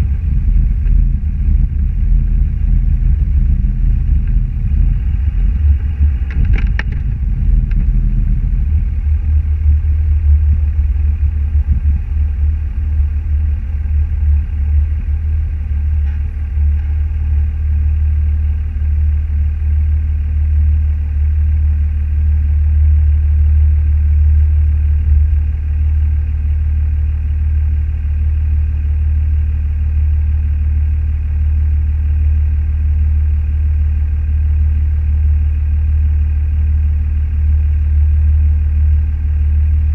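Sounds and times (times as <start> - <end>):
car engine and road noise: 0.0 - 18.6.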